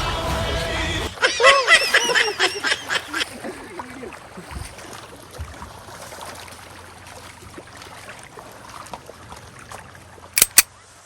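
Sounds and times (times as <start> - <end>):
sharp clicks: 10.4 - 10.7.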